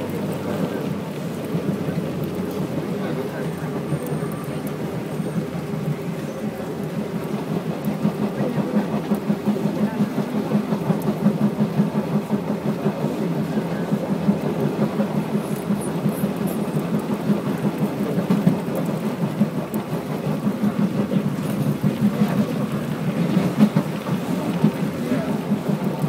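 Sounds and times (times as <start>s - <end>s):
train car rumbling on track: 0.0s - 26.0s.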